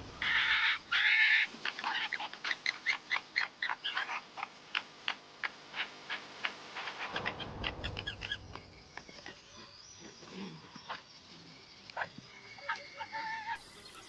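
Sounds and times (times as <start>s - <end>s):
harsh animal calls: 0.0s - 4.5s
low rumble: 7.0s - 9.8s.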